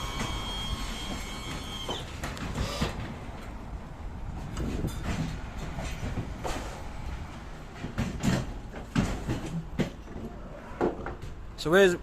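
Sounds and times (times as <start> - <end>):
low rumble of traffic: 0.0 - 12.0
knocks and clatters: 4.4 - 6.9, 7.7 - 11.4.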